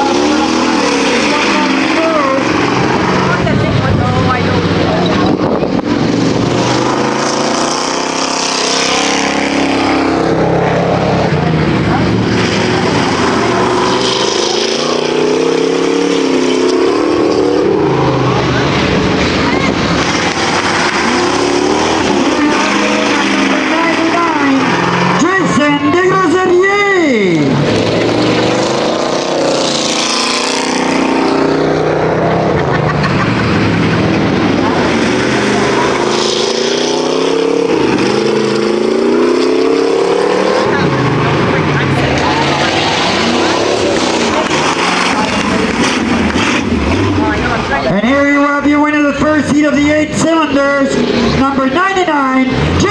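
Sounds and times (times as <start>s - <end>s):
stock car engines racing: 0.0s - 52.9s.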